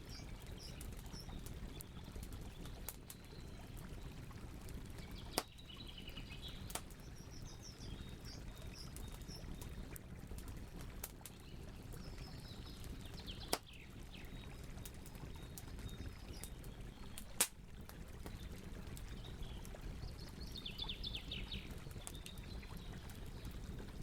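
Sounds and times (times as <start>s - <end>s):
campfire crackling: 0.0s - 24.0s
sharp fire pops: 17.2s - 17.6s.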